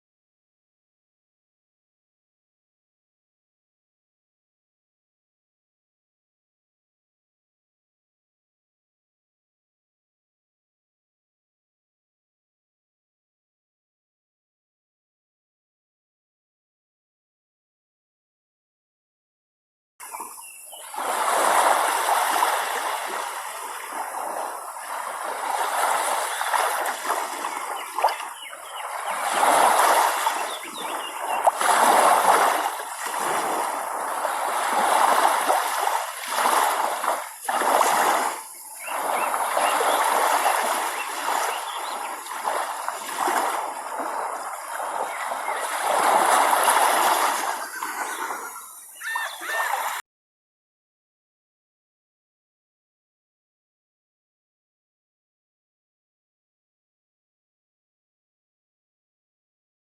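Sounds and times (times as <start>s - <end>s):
small waves splashing on shore: 20.0s - 50.0s.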